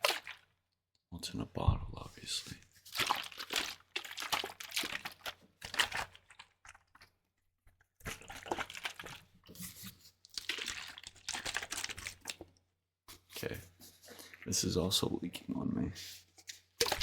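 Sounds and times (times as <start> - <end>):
plastic bottle crinkling: 2.8 - 7.2, 8.0 - 14.5, 16.4 - 17.0.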